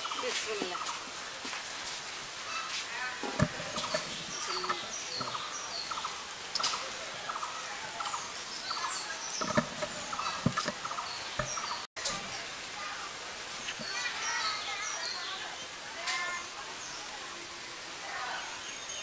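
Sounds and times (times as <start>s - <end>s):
birds whistling and chattering: 2.5s - 12.4s, 13.6s - 17.2s.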